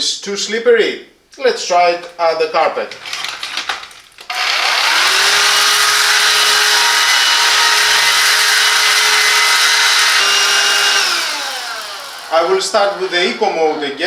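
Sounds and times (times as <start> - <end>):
handheld vacuum cleaner whining: 2.9 - 14.0.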